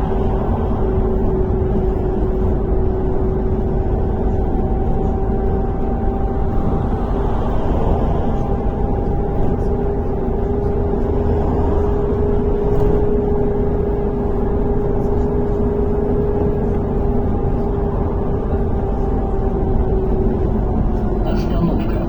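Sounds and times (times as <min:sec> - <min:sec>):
bus engine rumble: 0:00.0 - 0:22.0
drivetrain whine: 0:00.0 - 0:22.0.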